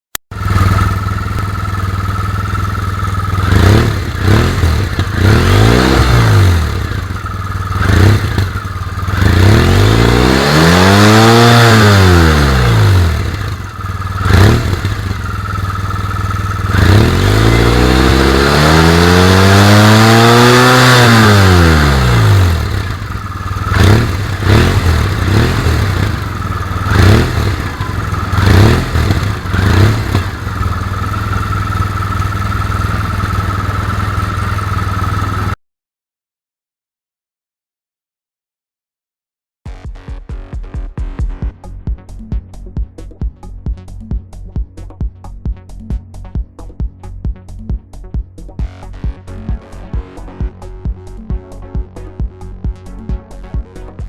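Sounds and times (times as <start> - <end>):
scooter engine idling and revving: 0.1 - 35.6.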